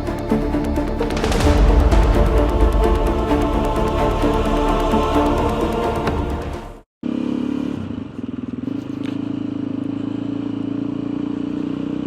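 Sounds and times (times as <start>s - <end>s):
intro music: 0.0s - 6.9s.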